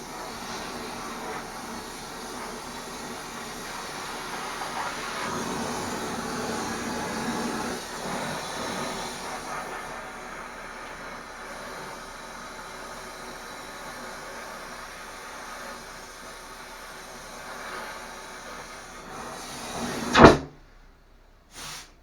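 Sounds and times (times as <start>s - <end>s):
welding hissing and crackling: 0.0s - 19.9s
loud sharp burst: 20.0s - 20.6s.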